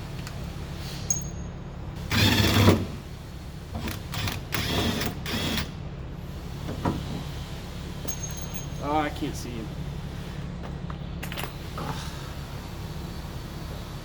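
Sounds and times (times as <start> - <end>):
steady low hum: 0.0 - 14.0
handheld power tool running: 2.1 - 2.9, 3.8 - 5.7.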